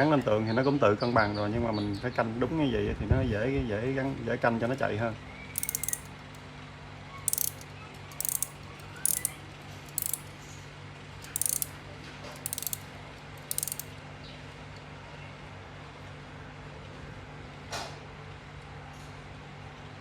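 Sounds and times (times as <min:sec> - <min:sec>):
clock ratchet clicking: 0:05.6 - 0:06.1, 0:07.3 - 0:10.3, 0:11.2 - 0:11.7, 0:12.4 - 0:12.8, 0:13.4 - 0:13.9.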